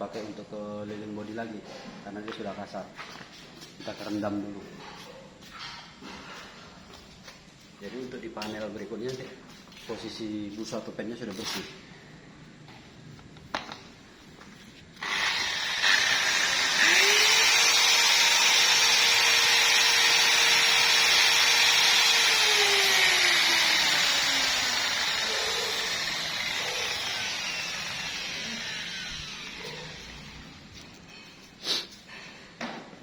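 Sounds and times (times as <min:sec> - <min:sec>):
car polishing machine motor whine: 0:15.0 - 0:30.8.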